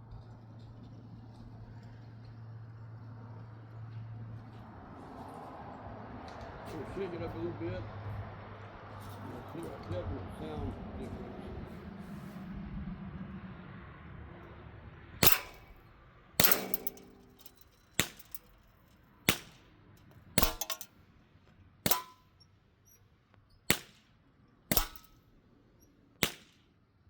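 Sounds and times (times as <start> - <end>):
bb gun shots cracking: 15.2 - 15.8, 16.4 - 18.5, 19.3 - 19.6, 20.4 - 20.9, 21.9 - 22.2, 23.7 - 24.0, 24.7 - 25.2, 26.2 - 26.6
short metallic ring: 15.2 - 15.8, 16.4 - 19.5, 20.4 - 20.9, 21.9 - 22.5, 24.7 - 25.2.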